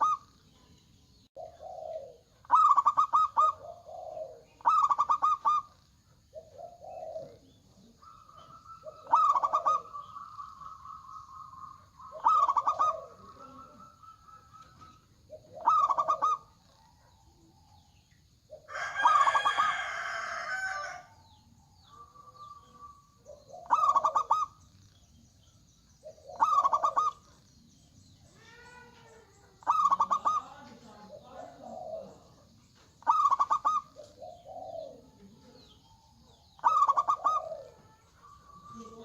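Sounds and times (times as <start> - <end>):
doves cooing: 0.0 - 0.4, 1.4 - 39.0
long layered bird call: 0.0 - 39.0.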